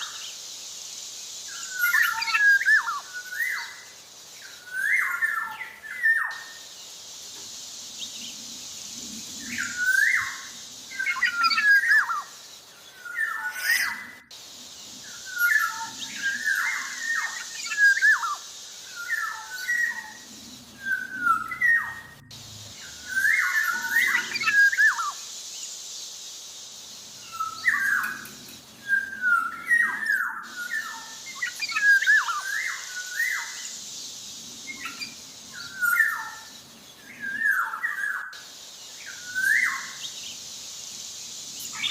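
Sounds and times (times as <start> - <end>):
steady high hiss: 0.0 - 41.9
bird singing fluty whistles: 1.5 - 6.6, 9.4 - 14.3, 15.0 - 20.2, 20.8 - 25.3, 27.2 - 40.4.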